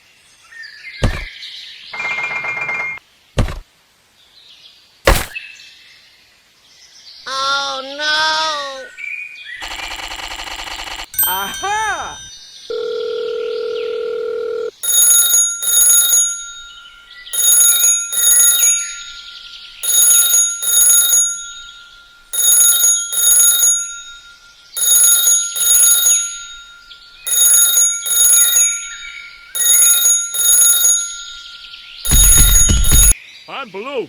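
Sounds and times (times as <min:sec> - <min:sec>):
bell ringing: 0:11.2 - 0:13.3, 0:14.7 - 0:33.2.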